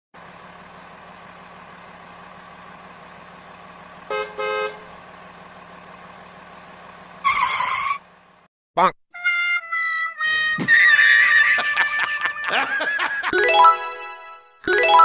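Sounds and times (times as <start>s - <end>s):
cartoon truck engine hum: 0.2s - 15.0s
horn honks: 4.1s - 4.9s.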